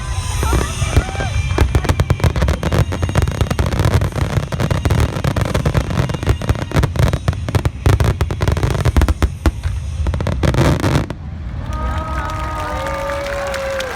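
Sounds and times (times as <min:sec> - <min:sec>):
fireworks shells bursting: 0:00.0 - 0:11.2
fireworks crackling: 0:00.0 - 0:13.9.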